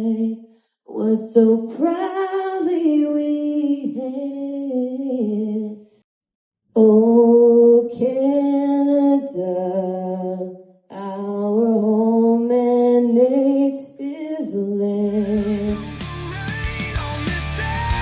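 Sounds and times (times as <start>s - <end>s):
person singing unaccompanied: 6.8s - 18.0s
rock music with drums and bass: 15.3s - 18.0s.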